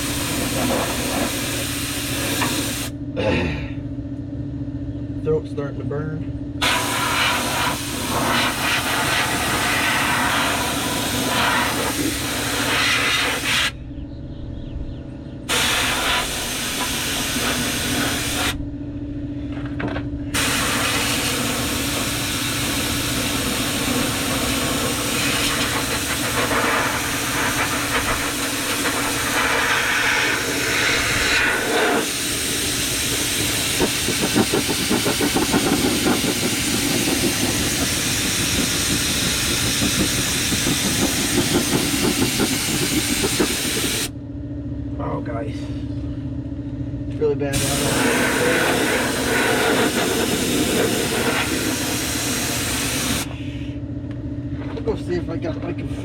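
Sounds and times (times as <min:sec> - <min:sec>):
spray gun hissing: 0:00.0 - 0:02.9, 0:06.6 - 0:13.7, 0:15.5 - 0:18.6, 0:20.4 - 0:44.1, 0:47.6 - 0:53.3
steady hum: 0:00.0 - 0:56.0.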